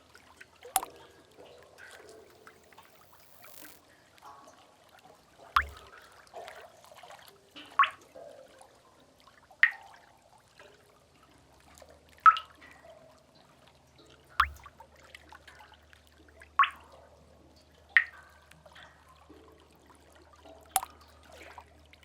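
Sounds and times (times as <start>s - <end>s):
faint water trickle: 0.0s - 22.0s
water drops plinking into pool: 0.6s - 3.8s, 5.6s - 6.0s, 14.4s - 14.8s, 16.6s - 16.9s, 20.4s - 21.4s.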